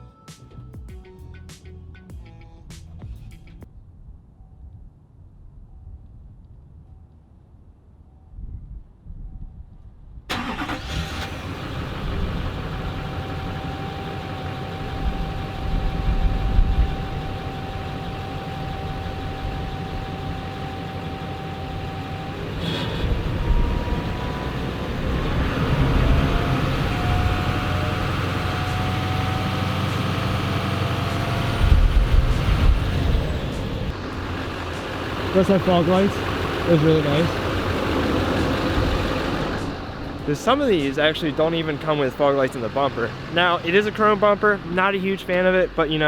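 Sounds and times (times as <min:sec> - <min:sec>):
diesel engine starting and idling: 0:10.3 - 0:46.0.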